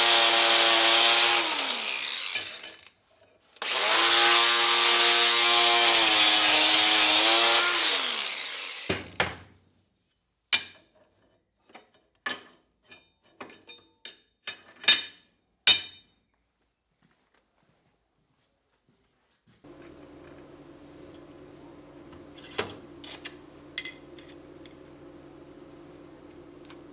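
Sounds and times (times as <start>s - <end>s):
angle grinder on steel: 0.0s - 2.9s, 3.6s - 9.2s.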